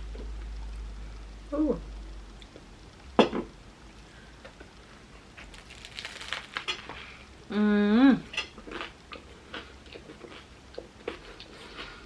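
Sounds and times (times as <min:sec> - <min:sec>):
crunchy bite into sandwich: 0:05.4 - 0:06.8
close-up crunchy chewing: 0:05.4 - 0:06.9.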